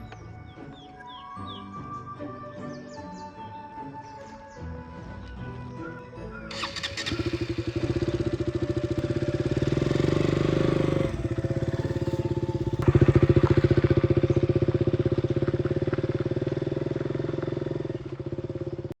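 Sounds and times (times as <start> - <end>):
motorcycle engine running: 6.5 - 19.0.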